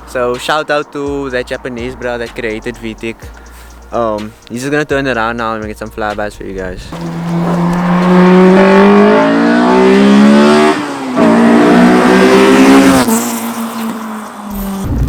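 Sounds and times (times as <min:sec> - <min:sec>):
car engine accelerating hard: 0:06.5 - 0:15.0.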